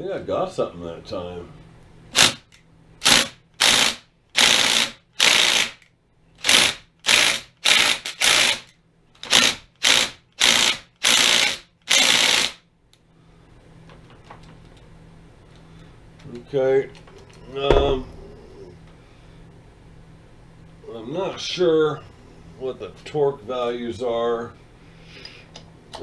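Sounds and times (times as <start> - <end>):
electric impact wrench bursts: 2.1 - 5.8, 6.4 - 12.6.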